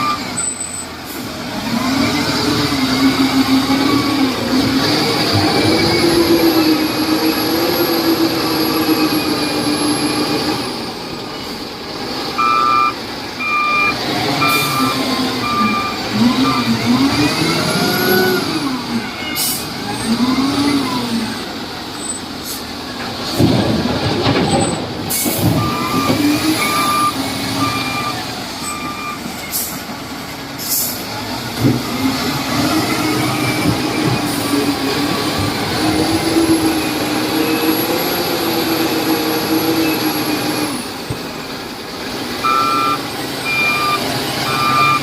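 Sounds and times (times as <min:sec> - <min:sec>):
reversing alarm beeping: 0:00.0 - 0:00.8, 0:12.4 - 0:18.4, 0:25.6 - 0:29.7, 0:42.4 - 0:45.0
diesel engine revving: 0:00.0 - 0:45.0.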